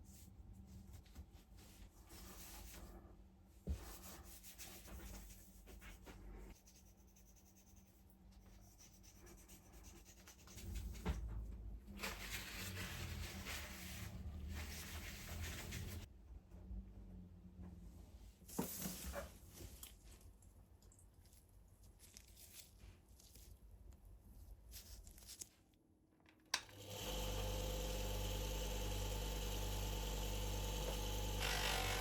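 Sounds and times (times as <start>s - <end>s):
hand rubbing and scraping surface: 12.0s - 16.1s.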